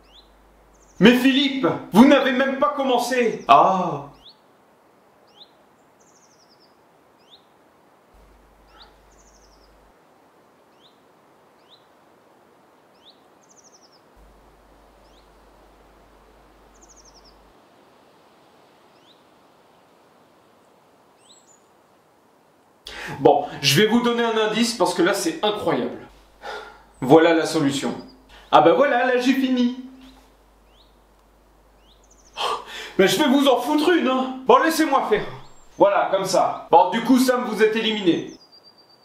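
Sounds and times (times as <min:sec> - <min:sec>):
bird chirping and trilling: 0:00.0 - 0:04.5, 0:05.2 - 0:07.6, 0:08.2 - 0:09.9, 0:10.7 - 0:12.0, 0:12.9 - 0:17.5, 0:18.9 - 0:19.3, 0:21.2 - 0:21.7, 0:26.5 - 0:39.0
steady outdoor hiss: 0:00.0 - 0:39.0.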